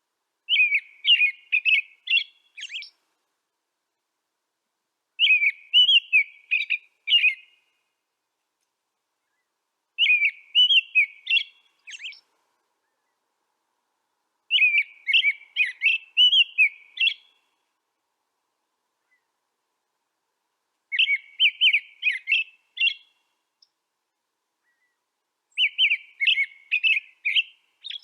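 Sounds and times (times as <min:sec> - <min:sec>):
songbird warbling: 0:00.5 - 0:03.0, 0:05.2 - 0:07.7, 0:09.2 - 0:13.2, 0:14.5 - 0:17.4, 0:20.9 - 0:23.8, 0:24.6 - 0:28.0.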